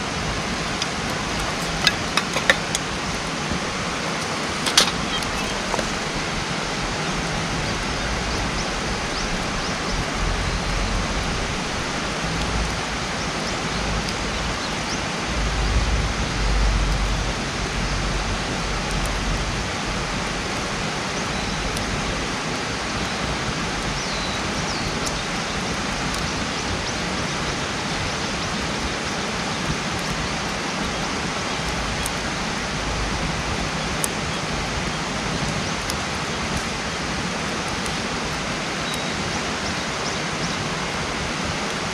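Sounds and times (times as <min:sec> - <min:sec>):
steady rushing noise: 0:00.0 - 0:41.9
wind rumble on microphone: 0:00.0 - 0:41.9
campfire pops and crackles: 0:00.5 - 0:15.9, 0:17.6 - 0:39.4.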